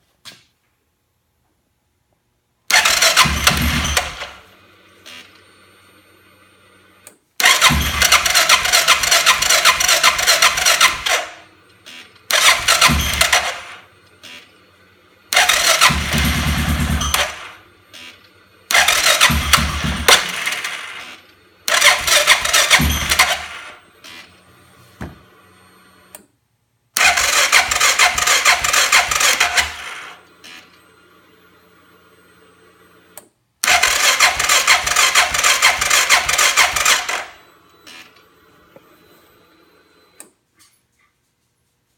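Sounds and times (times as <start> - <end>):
electric starter cranking engine: 2.7 - 4.5, 7.0 - 14.4, 15.3 - 24.3, 27.0 - 30.6, 33.6 - 37.4.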